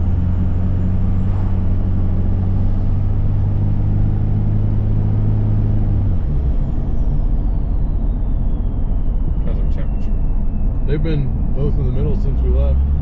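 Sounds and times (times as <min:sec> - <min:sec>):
diesel engine running: 0:00.0 - 0:13.0
high turbo whistle: 0:06.4 - 0:11.2.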